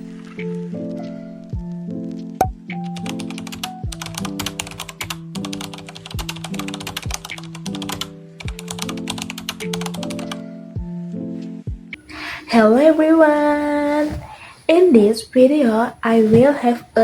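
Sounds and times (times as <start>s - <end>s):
deep kick drum thuds: 2.4s - 2.7s, 10.8s - 11.0s, 11.7s - 11.9s.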